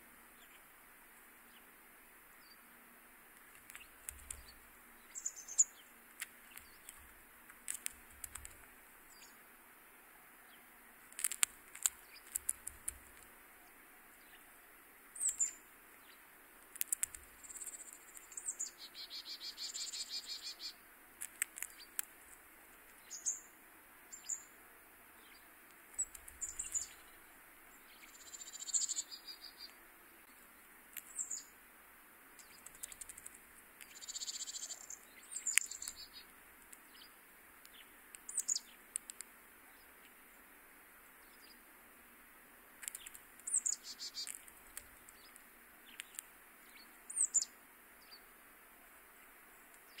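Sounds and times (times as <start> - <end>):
small birds chirping: 0.0 - 50.0
sharp clicks: 3.4 - 4.6, 6.1 - 8.7, 11.1 - 13.3, 16.6 - 18.4, 21.2 - 22.3, 25.7 - 27.0, 32.4 - 34.0, 37.6 - 39.3, 42.8 - 46.3
bird trilling: 17.4 - 20.8.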